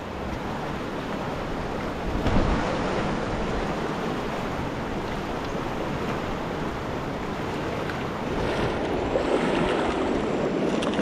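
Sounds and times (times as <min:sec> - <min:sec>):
creek water flowing: 0:00.0 - 0:11.0
low thump: 0:02.2 - 0:02.7.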